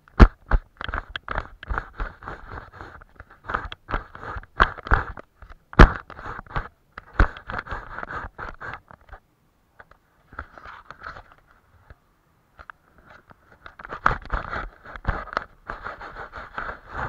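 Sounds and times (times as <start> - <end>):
paintbrush scraping across paper: 1.6 - 5.2, 6.1 - 8.9, 13.9 - 17.0.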